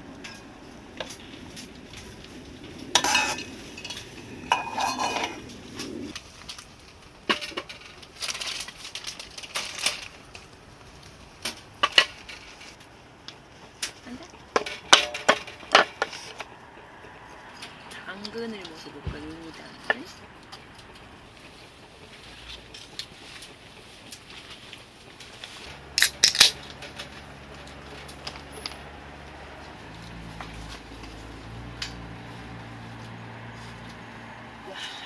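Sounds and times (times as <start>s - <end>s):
utensils clinking against dishes: 3.0s - 6.1s.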